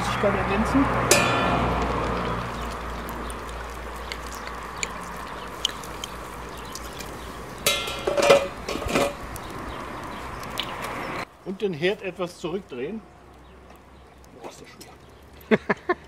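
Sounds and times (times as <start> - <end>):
splashing and clinking: 1.0 - 11.1.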